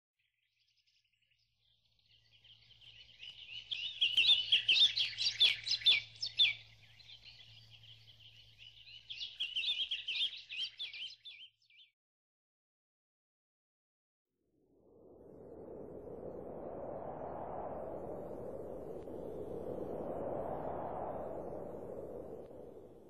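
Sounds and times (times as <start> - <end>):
birds warbling chirps: 2.1 - 11.9.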